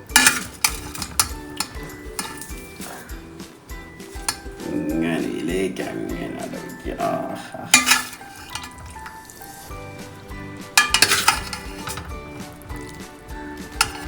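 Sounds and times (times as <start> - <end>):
background music: 0.0 - 14.0
dishes and cutlery clinking: 0.0 - 14.0.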